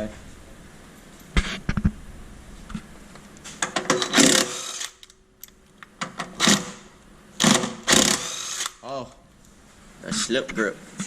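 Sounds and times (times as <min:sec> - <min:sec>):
impact wrench hammering: 0:03.6 - 0:05.0, 0:06.0 - 0:08.8.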